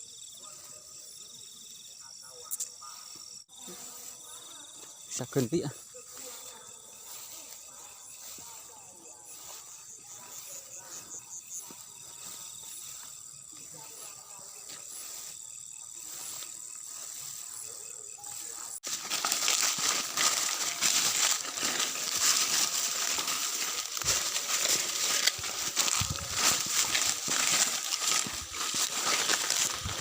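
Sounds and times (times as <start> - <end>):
insects trilling faintly: 0.0 - 30.0
dry vegetation crackling and rustling: 16.0 - 30.0.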